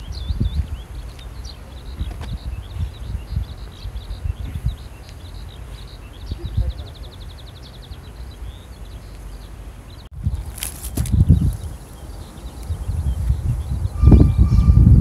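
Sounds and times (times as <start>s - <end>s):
small birds chirping: 0.0s - 15.0s
wind buffeting microphone: 0.0s - 15.0s
bird trill: 11.3s - 15.0s.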